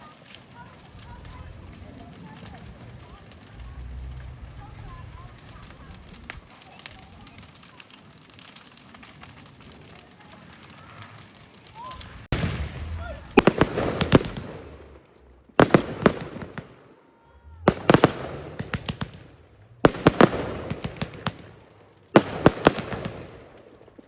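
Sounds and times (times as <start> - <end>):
firework shells bursting: 12.0 - 24.0.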